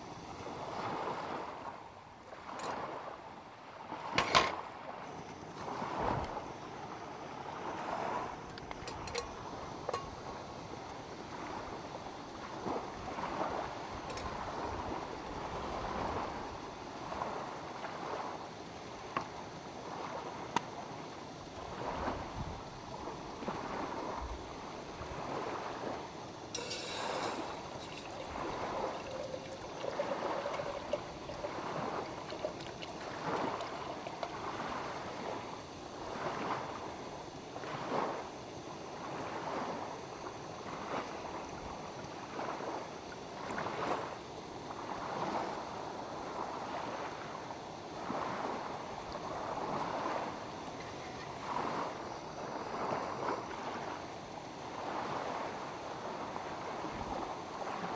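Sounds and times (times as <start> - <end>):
waves lapping against shore: 0.0 - 57.9.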